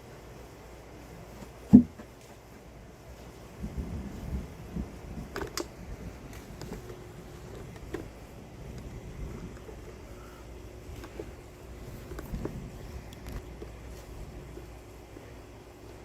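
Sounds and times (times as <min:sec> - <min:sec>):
sharp thump: 0:01.7 - 0:02.0
thunder rumbling: 0:03.6 - 0:06.6.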